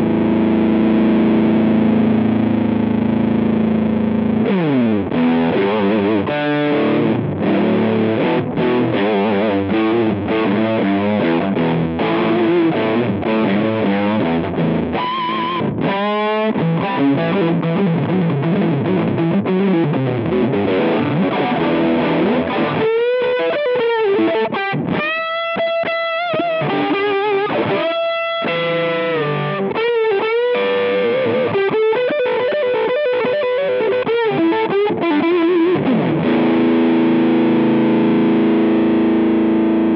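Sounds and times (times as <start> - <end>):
fuzzed electric guitar: 0.0 - 39.9.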